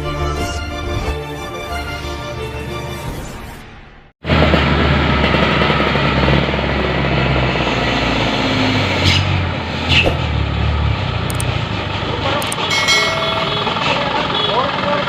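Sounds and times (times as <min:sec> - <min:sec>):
diesel truck engine running: 0:03.8 - 0:15.0.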